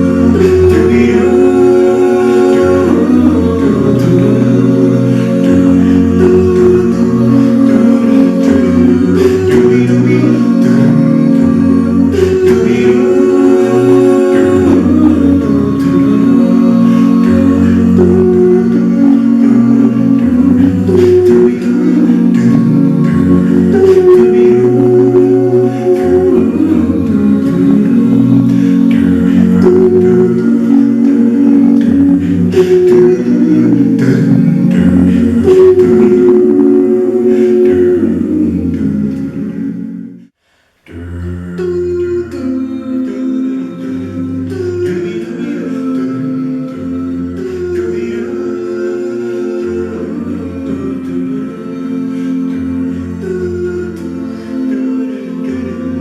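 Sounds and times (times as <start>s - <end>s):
bass voice: 0.0s - 40.3s
a cappella group singing harmony: 0.0s - 56.0s.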